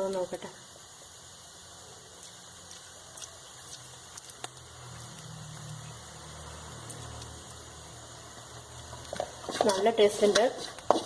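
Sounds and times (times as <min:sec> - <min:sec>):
fish roe sizzling in oil: 0:00.0 - 0:11.0.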